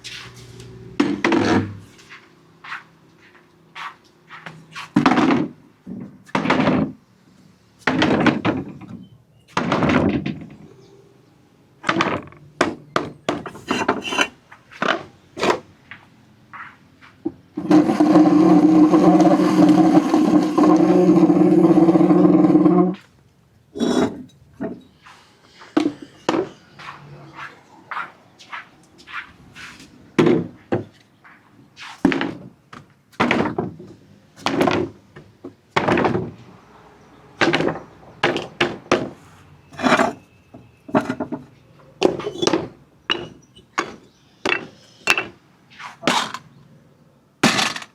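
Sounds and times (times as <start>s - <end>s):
marbles clattering on wooden ramps: 17.6s - 23.0s, 39.7s - 40.3s, 40.9s - 45.3s, 47.4s - 47.9s.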